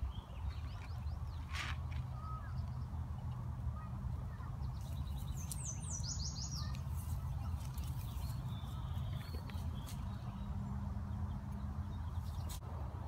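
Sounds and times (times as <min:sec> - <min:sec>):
songbird call: 0:00.0 - 0:02.9, 0:04.3 - 0:10.5.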